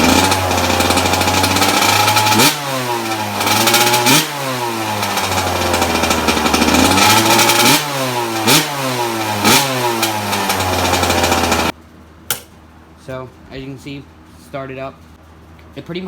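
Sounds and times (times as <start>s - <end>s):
dirt bike engine revving: 0.0s - 11.7s.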